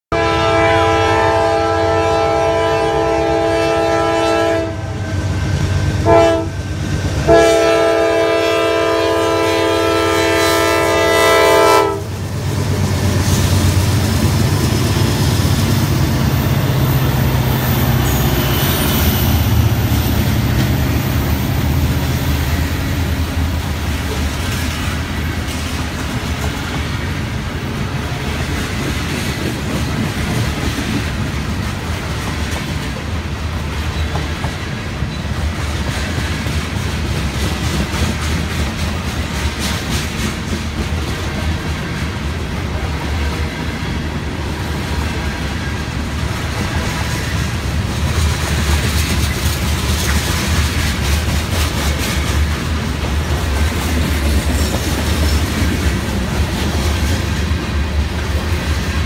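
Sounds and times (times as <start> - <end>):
locomotive air horn chord: 0.1 - 5.0, 6.0 - 6.6, 7.2 - 12.2
locomotives rumbling past: 3.3 - 59.0
wheels clacking on rails: 5.0 - 59.0.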